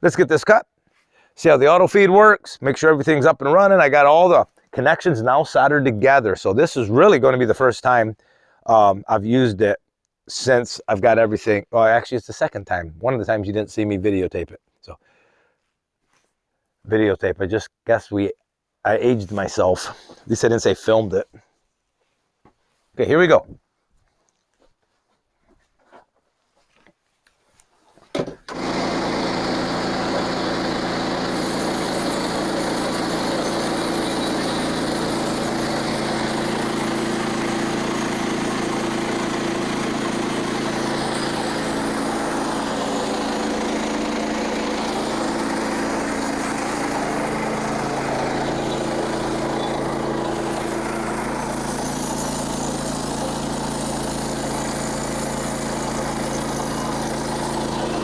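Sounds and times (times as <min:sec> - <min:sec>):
small gasoline engine running: 0:28.5 - 0:58.0.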